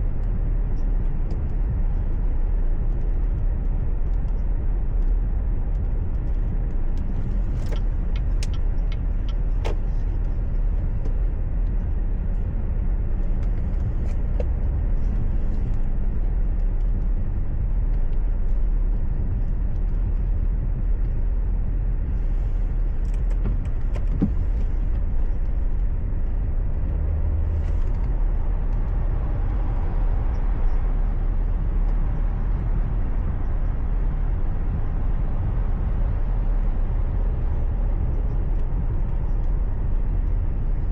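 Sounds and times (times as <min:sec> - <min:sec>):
car engine and tyres rumbling: 0:00.0 - 0:40.9
sharp clicks: 0:05.8 - 0:11.8.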